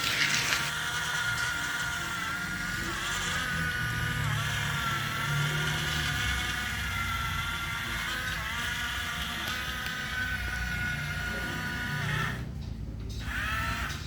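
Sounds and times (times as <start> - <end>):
small electric motors whining: 0.0 - 14.0.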